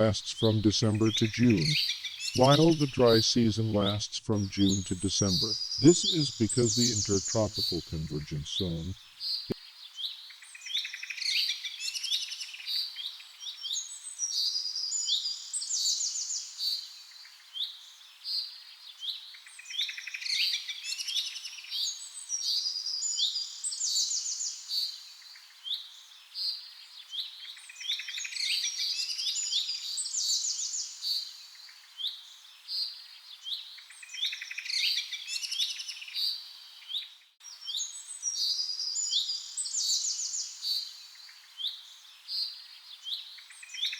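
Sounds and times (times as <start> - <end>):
birds chirping and trilling: 0.0 - 9.5.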